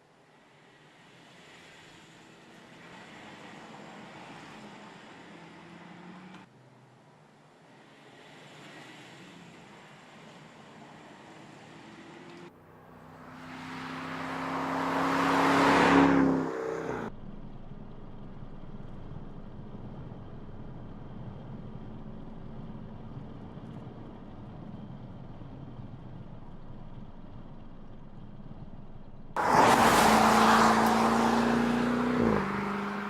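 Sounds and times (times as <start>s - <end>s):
car engine and tyre noise: 0.0s - 33.0s.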